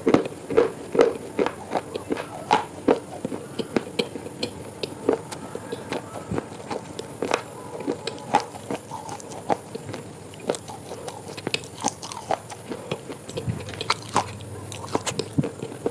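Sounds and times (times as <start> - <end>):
person chewing crunchy food: 0.0 - 15.9.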